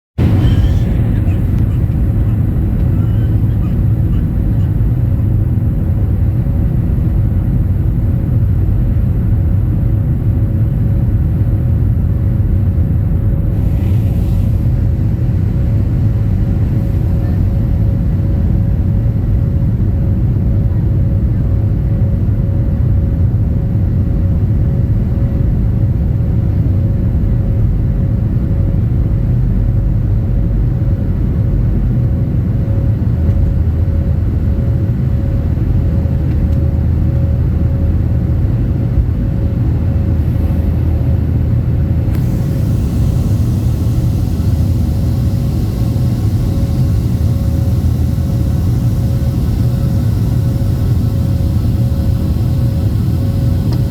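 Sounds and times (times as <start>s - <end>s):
jet engine rumble: 0.2s - 53.9s
jet engine whine: 0.2s - 53.9s
bright hiss: 42.0s - 53.9s.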